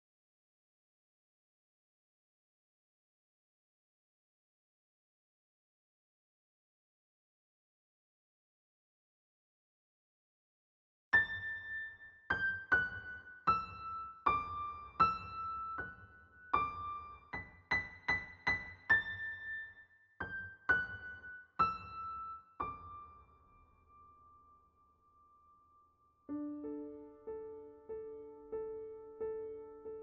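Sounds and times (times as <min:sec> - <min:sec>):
slow piano melody: 0:11.2 - 0:30.0.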